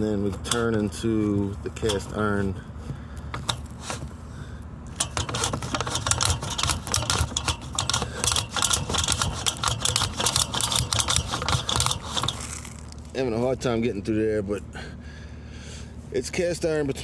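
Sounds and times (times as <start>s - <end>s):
camera head rattling in pipe: 5.0s - 13.0s.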